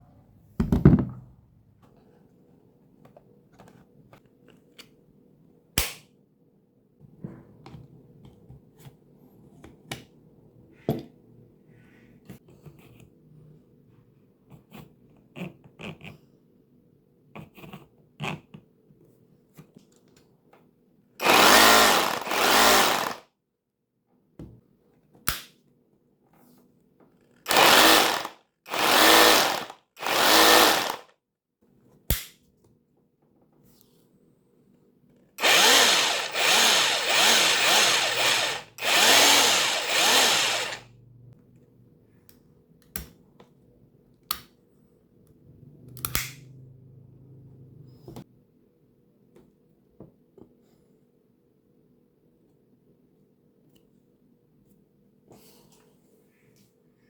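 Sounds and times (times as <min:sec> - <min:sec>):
hammer drill running: 0:21.2 - 0:23.2, 0:27.5 - 0:31.1, 0:35.4 - 0:40.9.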